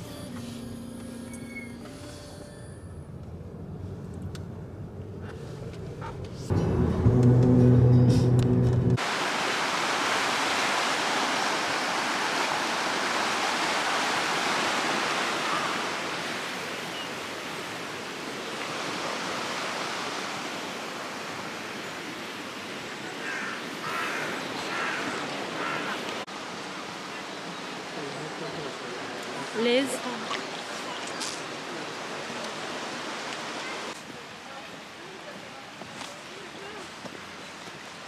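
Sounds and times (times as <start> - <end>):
river water rushing over rocks: 9.0 - 38.0.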